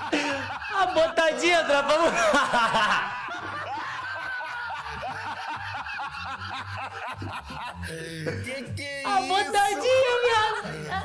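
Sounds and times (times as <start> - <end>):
people snickering and giggling: 0.0 - 8.6.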